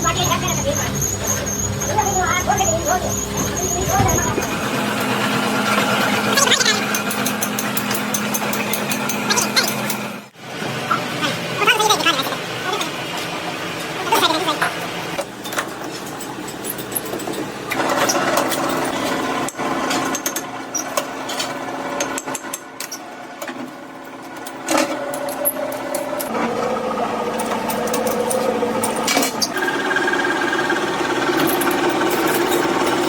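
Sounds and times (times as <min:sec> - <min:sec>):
power machinery humming: 0:00.0 - 0:10.3, 0:24.7 - 0:33.0.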